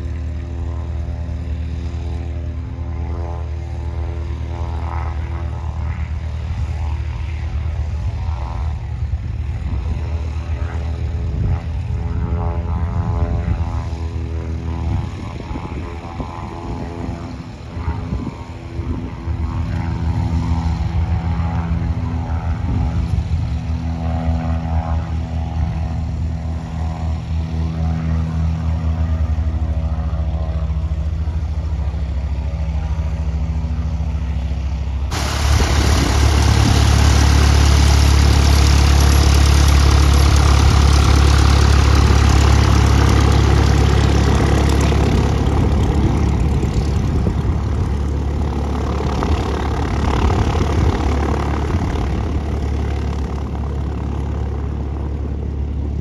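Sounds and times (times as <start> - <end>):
propeller airplane engine drone: 0.0 - 56.0.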